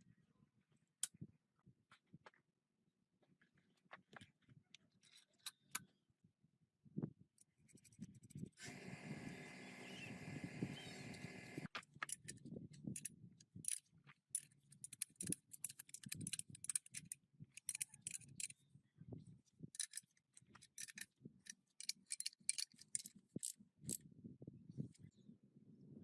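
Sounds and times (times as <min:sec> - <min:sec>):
metallic clicks of tools: 0:13.0 - 0:13.8, 0:14.4 - 0:18.6, 0:19.8 - 0:24.0.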